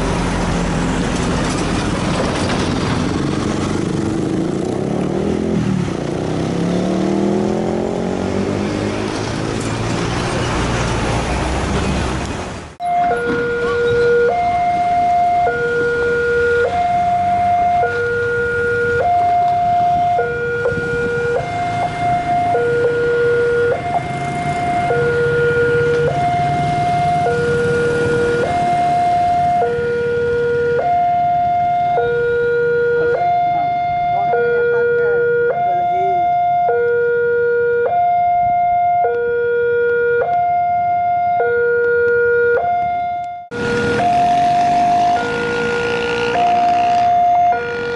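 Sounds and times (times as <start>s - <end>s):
two-tone level-crossing alarm: 12.8s - 47.9s.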